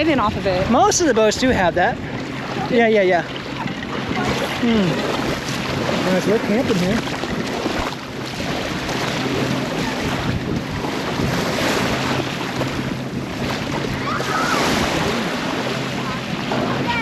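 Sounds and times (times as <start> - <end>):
small waves washing on shore: 0.0 - 17.0
strong wind on microphone: 3.5 - 17.0.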